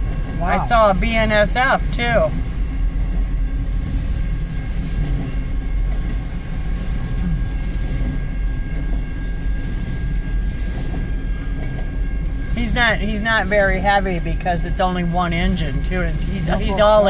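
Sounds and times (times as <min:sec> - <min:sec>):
freight cars rolling rumble: 0:00.0 - 0:17.0.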